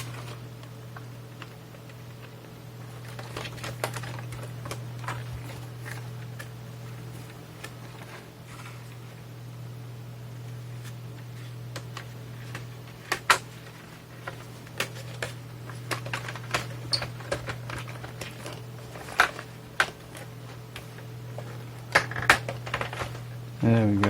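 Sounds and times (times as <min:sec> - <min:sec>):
steady low hum: 0:00.0 - 0:24.0
plastic case clicks and knocks: 0:14.8 - 0:23.2.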